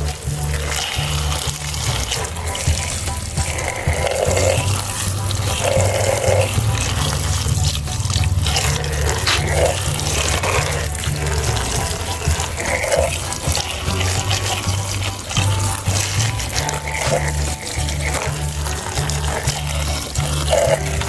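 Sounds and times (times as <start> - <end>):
background music: 0.0 - 21.0
tap water running and splashing: 0.0 - 21.0.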